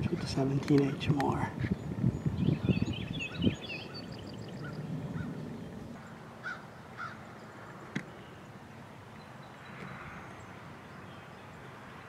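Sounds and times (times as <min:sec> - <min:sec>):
birds twittering: 0:00.0 - 0:12.0
bird single calls: 0:01.6 - 0:05.4.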